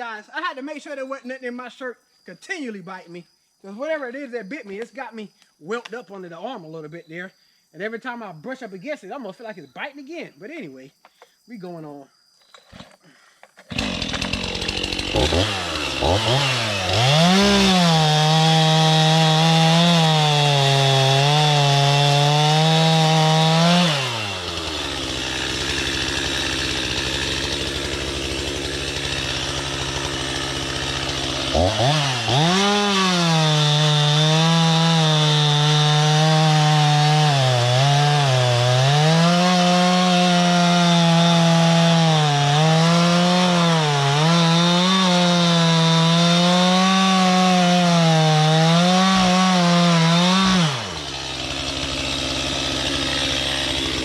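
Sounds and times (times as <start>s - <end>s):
chainsaw cutting log: 12.5s - 54.0s.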